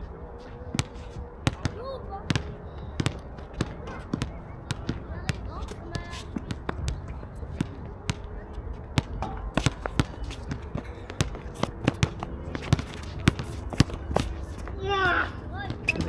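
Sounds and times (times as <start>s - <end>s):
basketballs bouncing on court: 0.7s - 16.0s.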